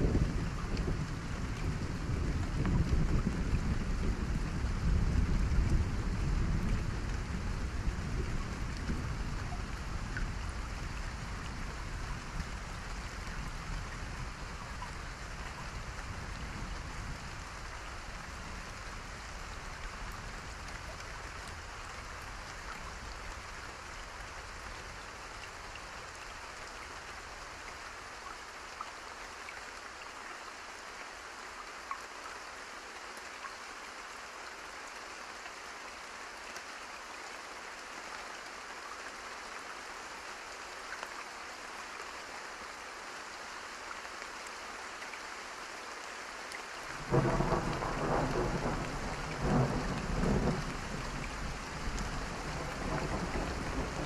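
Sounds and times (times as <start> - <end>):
rain hiss: 0.0 - 54.0
raindrop ticks: 46.9 - 54.0.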